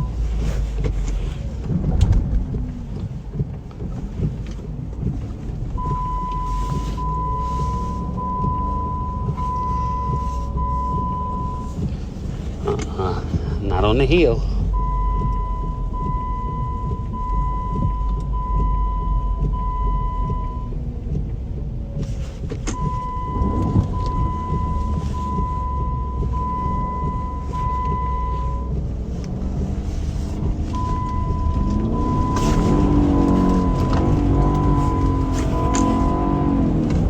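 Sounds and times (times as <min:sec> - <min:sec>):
car engine and tyres rumbling: 0:00.0 - 0:37.0
electronic warning tone beeping: 0:22.8 - 0:28.7, 0:30.8 - 0:36.8.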